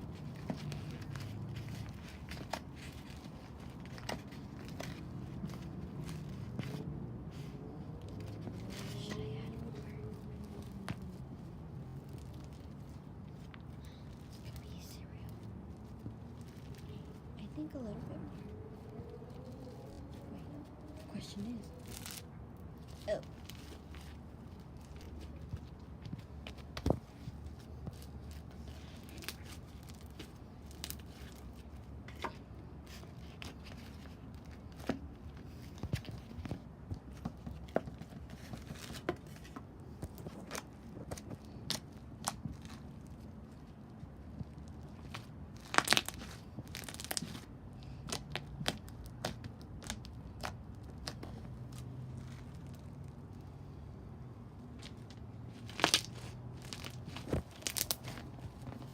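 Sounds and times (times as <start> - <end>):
low steady hum: 0.0 - 58.9
slime popping and crackling: 45.1 - 47.4, 55.6 - 58.3.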